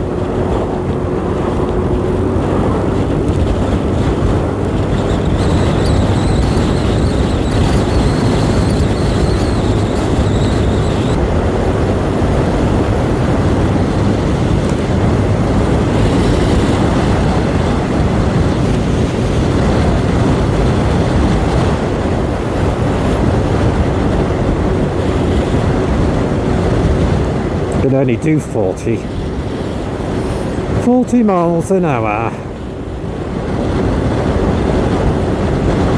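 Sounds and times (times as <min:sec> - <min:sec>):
motorbike engine running: 0:00.0 - 0:27.7
wind on microphone: 0:00.0 - 0:35.9.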